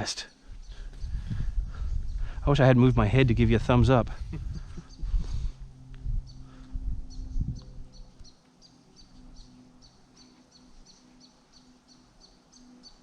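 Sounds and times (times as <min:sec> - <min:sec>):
small bird chirping: 0:00.6 - 0:02.3, 0:06.2 - 0:13.0.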